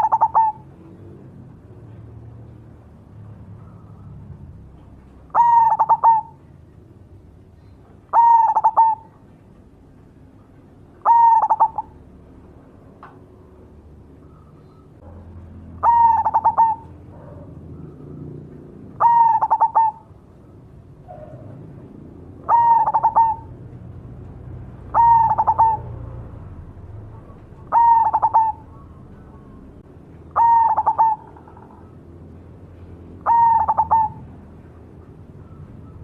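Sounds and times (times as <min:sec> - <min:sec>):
dove cooing: 0:00.0 - 0:01.2, 0:05.3 - 0:06.5, 0:08.0 - 0:09.3, 0:11.0 - 0:12.0, 0:15.8 - 0:20.2, 0:22.3 - 0:23.8, 0:24.8 - 0:26.3, 0:27.2 - 0:32.0, 0:33.2 - 0:34.6.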